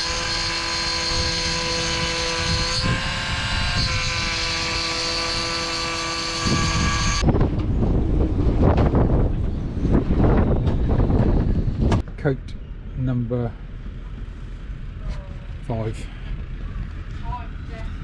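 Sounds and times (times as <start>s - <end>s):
small motor whining: 0.0s - 7.2s
rough gusty noise: 6.4s - 12.0s.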